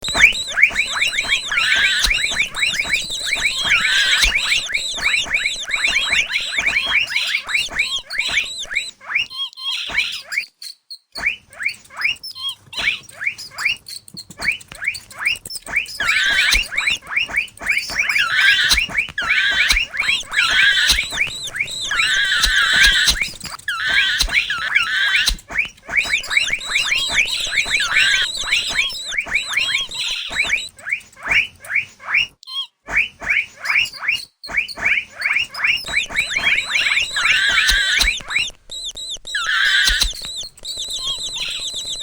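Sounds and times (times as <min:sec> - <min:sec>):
mouse squeaking: 0:00.0 - 0:42.0.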